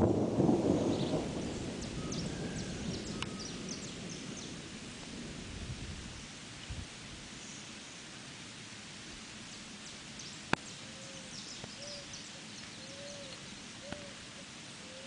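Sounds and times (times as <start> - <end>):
rain hiss: 0.0 - 15.0
bird hooting: 11.0 - 12.1, 12.8 - 14.2, 14.8 - 15.0.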